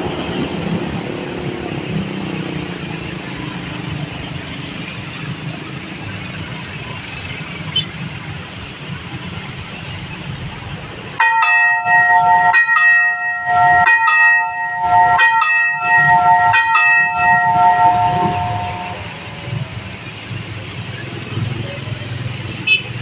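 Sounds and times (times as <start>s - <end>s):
level crossing warning bell: 11.2s - 20.0s.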